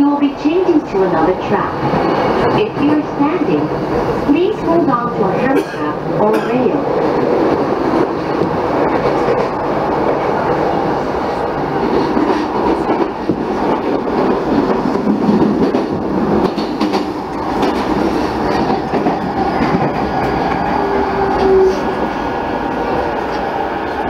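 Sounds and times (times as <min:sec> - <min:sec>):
train wheels rumbling on rail: 0:00.0 - 0:24.0
rail joint clicks: 0:11.4 - 0:22.0.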